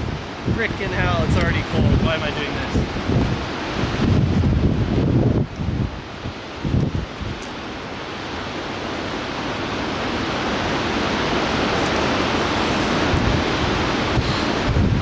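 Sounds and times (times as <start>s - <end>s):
river water rushing: 0.0s - 4.2s, 6.0s - 15.0s.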